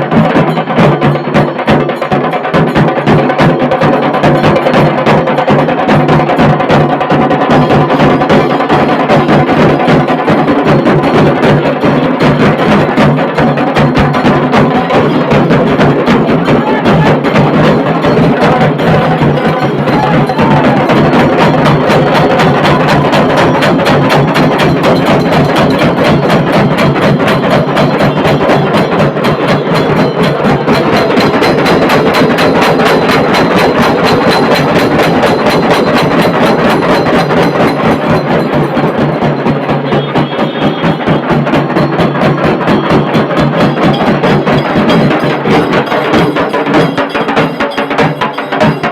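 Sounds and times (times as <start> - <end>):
dhol drum beats: 0.0 - 48.9
tasha drums fast roll: 0.0 - 48.9.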